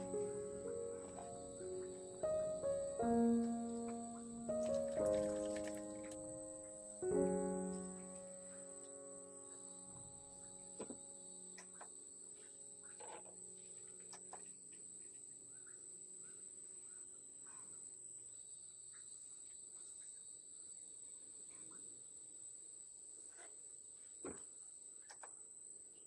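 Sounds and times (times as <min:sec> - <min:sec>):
high-pitched insect trill: 0:00.0 - 0:11.7
background music: 0:00.0 - 0:14.0
lower insect tone: 0:00.0 - 0:26.0.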